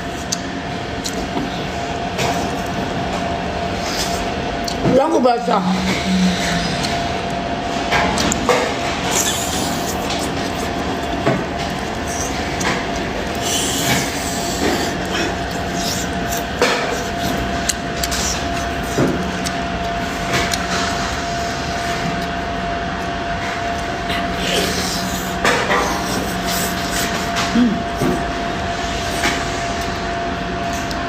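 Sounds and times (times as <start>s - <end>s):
steady background hum: 0.0s - 31.0s
chewing and crunching: 5.9s - 28.3s.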